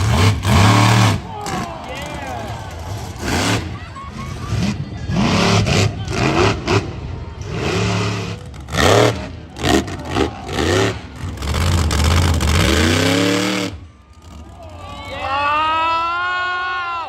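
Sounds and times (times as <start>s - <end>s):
monster truck engine revving: 0.0s - 16.0s.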